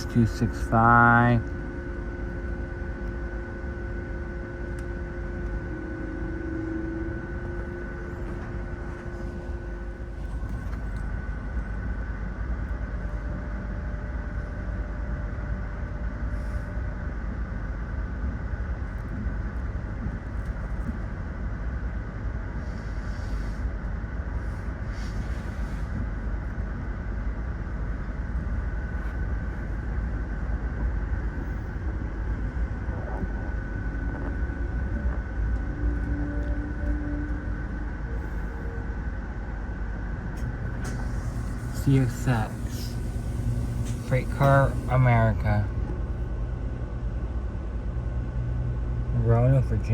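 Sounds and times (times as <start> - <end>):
steady tones: 0.0 - 11.4, 31.4 - 47.2
train rumbling on rails: 0.0 - 49.9.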